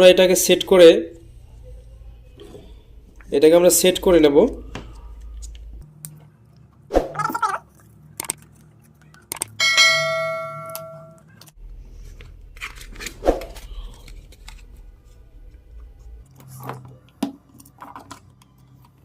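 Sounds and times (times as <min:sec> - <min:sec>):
metal object ringing when struck: 0:09.6 - 0:11.2.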